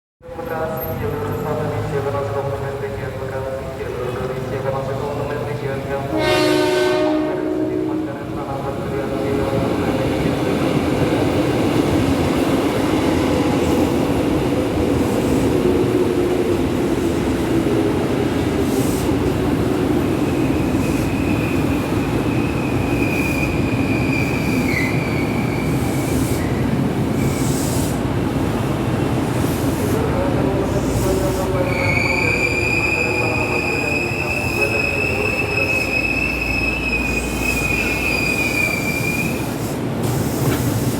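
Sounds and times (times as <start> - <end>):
train wheel squeal: 20.8 - 26.6, 31.6 - 40.9.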